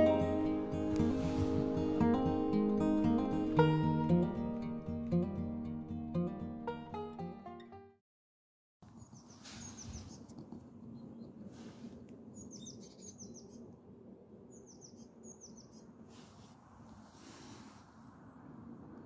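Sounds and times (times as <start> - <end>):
faint outdoor background noise: 8.8 - 19.0
small bird chirping: 8.9 - 11.4, 12.3 - 13.7, 14.5 - 16.0.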